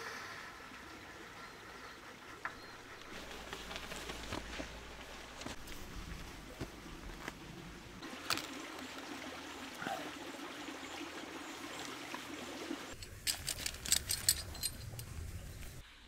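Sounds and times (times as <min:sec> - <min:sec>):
creek water trickling: 0:00.5 - 0:15.8.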